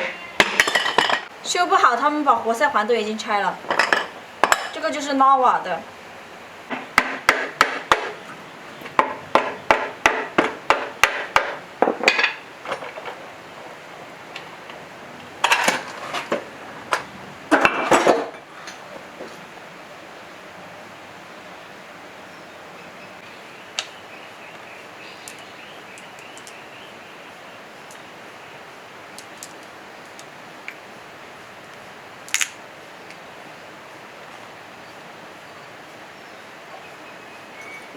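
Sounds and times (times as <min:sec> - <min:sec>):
metallic knocks on engine parts: 0:00.0 - 0:01.3, 0:06.7 - 0:08.2, 0:08.9 - 0:13.1.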